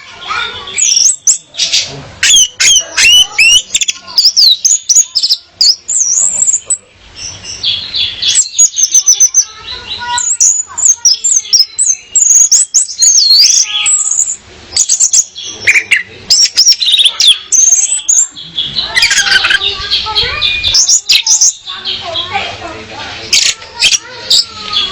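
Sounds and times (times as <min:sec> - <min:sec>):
thrush whistles and chirps: 0:10.1 - 0:21.7.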